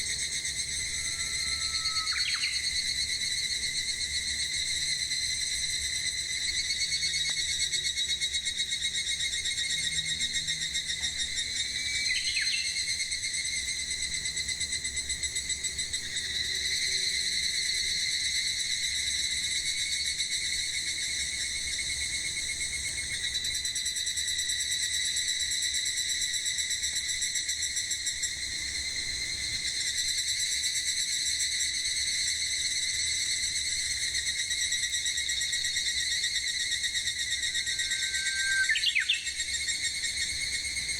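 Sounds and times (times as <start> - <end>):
cicadas buzzing: 0.0 - 40.9
bird chirp: 38.0 - 39.4.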